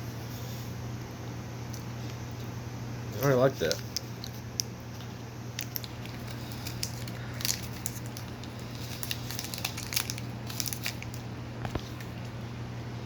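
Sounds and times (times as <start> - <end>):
steady low hum: 0.0 - 13.0
crunchy bar being chewed: 3.7 - 12.4.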